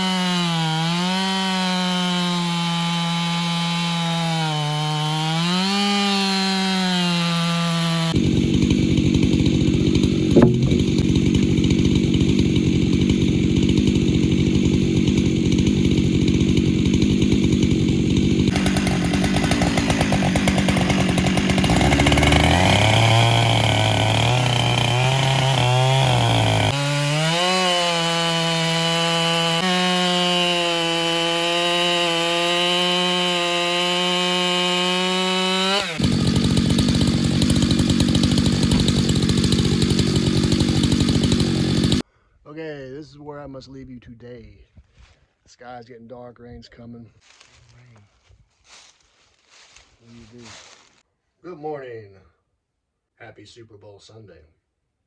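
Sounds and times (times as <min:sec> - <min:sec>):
chainsaw ripping a log: 0:00.0 - 0:42.0
sharp crack: 0:10.3 - 0:11.3.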